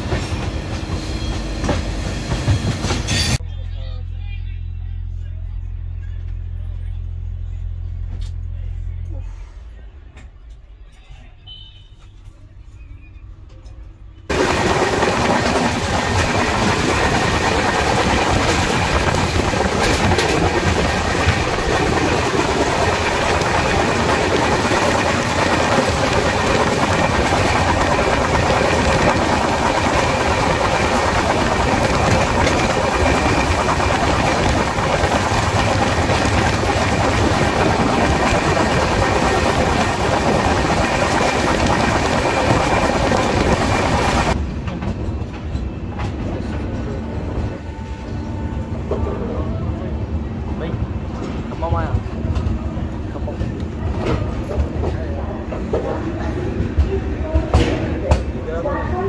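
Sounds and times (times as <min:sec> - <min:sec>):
train wheels on rails: 0:00.0 - 0:03.4, 0:13.6 - 0:49.4, 0:51.0 - 0:59.0.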